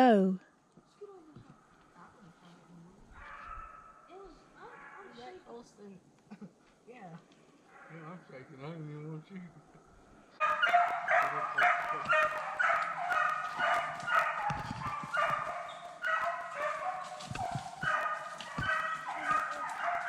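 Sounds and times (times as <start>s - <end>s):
hounds barking: 3.1s - 5.3s, 7.6s - 8.4s, 10.4s - 20.0s.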